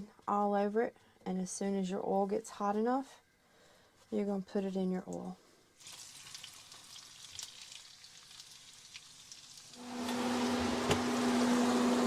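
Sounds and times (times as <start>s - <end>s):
butter and oil crackling in pan: 5.8s - 9.9s
chicken sizzling in oil: 5.8s - 11.7s.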